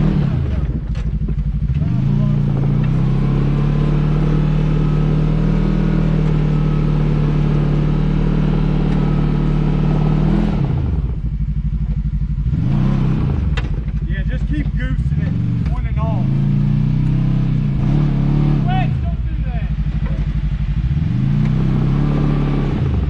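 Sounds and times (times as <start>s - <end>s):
utility vehicle engine revving: 0.0s - 23.0s.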